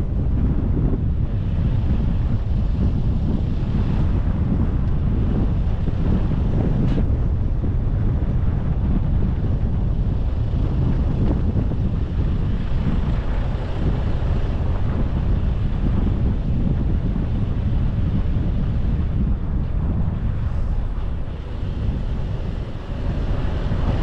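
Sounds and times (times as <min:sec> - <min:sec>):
road and wind noise: 0:00.0 - 0:24.0.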